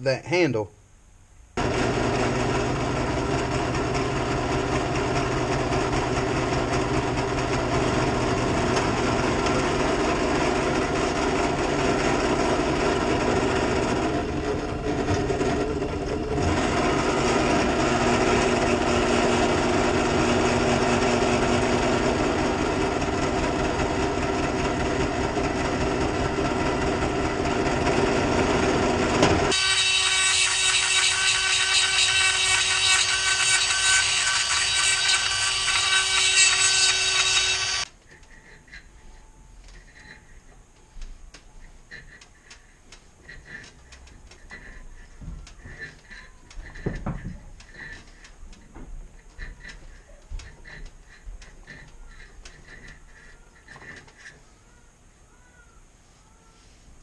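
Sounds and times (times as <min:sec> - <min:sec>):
electric grinder grinding metal: 0:01.6 - 0:37.9.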